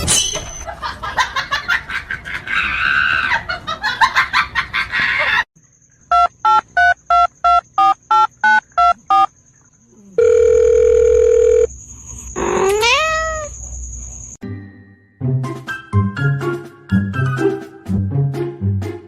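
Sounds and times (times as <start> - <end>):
steady telephone tone: 10.2 - 11.7
cat meowing: 12.5 - 13.5.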